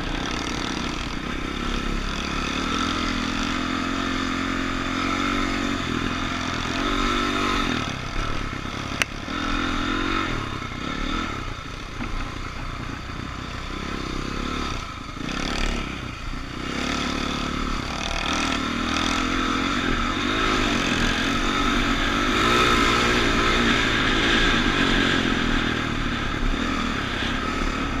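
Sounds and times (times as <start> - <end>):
dirt bike engines revving: 0.0 - 28.0.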